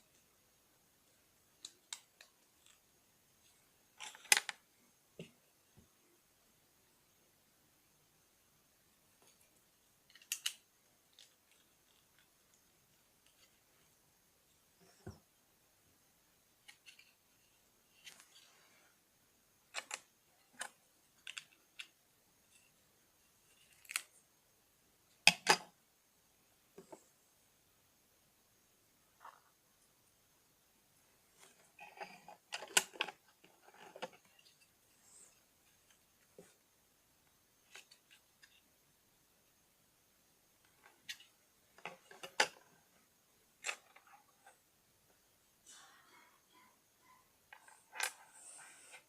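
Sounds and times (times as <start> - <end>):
plastic bricks clicking and knocking: 10.1 - 12.3.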